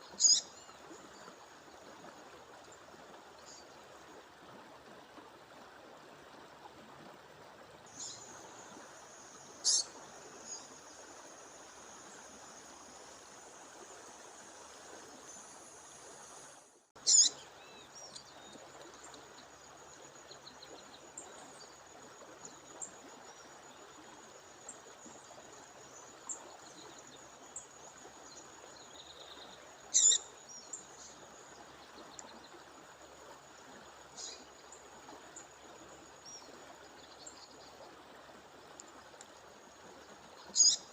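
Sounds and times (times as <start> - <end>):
short sharp bird calls: 9.6 - 9.9.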